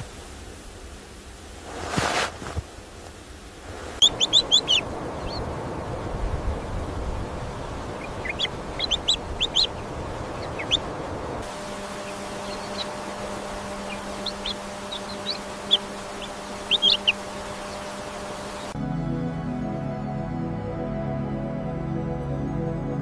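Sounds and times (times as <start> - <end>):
background hiss: 0.0 - 18.8
small birds chirping: 4.0 - 18.8.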